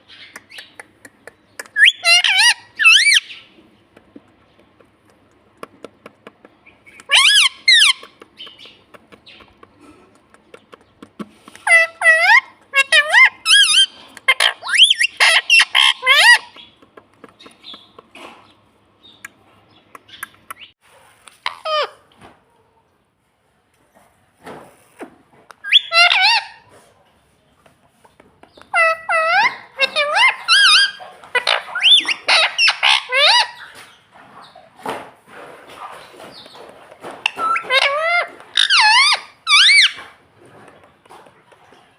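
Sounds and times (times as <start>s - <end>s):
soft chirps and clicks: 0.0s - 3.0s, 3.8s - 11.7s, 16.4s - 21.4s
parrot squawking: 1.7s - 3.4s, 6.9s - 8.6s, 11.6s - 16.7s, 21.4s - 22.0s, 25.6s - 26.7s, 28.7s - 33.8s, 37.2s - 40.1s
parrot squawks and whistles: 1.8s - 3.3s, 13.0s - 16.4s, 25.6s - 26.5s, 37.2s - 40.0s.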